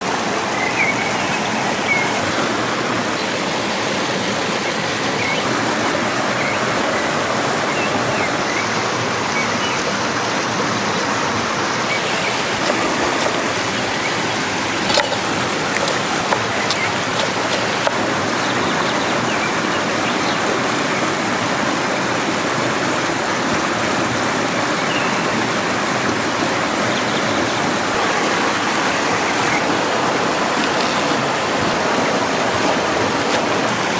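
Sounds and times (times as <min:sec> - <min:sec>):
stream water rushing: 0:00.0 - 0:33.9.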